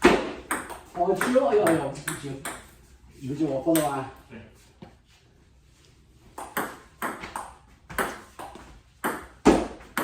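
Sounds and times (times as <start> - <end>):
table tennis ball hits: 0.0 - 2.8, 6.4 - 10.0.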